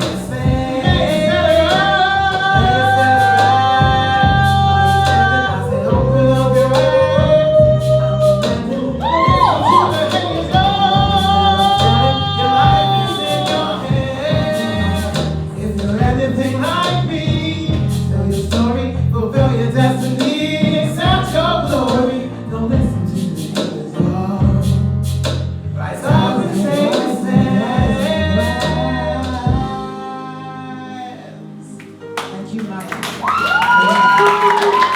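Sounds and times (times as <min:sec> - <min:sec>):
instrumental backing: 0:00.0 - 0:34.9
woman singing: 0:05.0 - 0:15.2.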